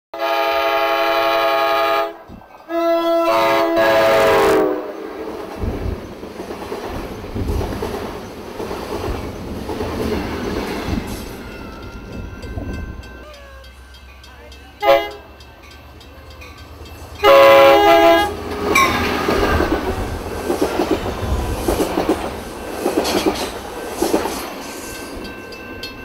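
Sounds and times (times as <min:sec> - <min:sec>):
train horn blasts: 0:00.1 - 0:05.3, 0:14.8 - 0:15.3, 0:17.2 - 0:19.7
train wheels clattering on rails: 0:05.2 - 0:26.0.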